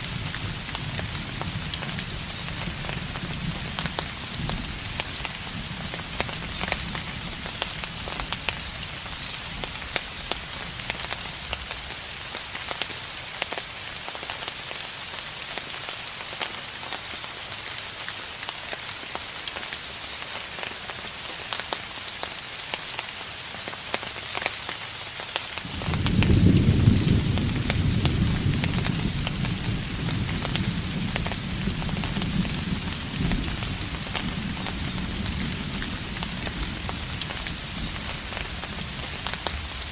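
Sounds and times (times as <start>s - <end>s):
steady rain falling: 0.0s - 39.9s
distant thunder rumble: 25.7s - 39.8s.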